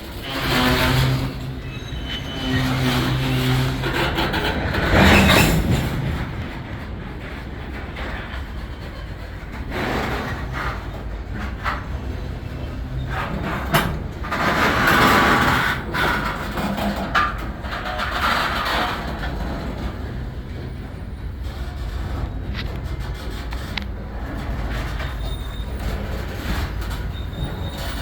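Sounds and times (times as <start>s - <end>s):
diesel locomotives rumbling: 0.0s - 28.0s.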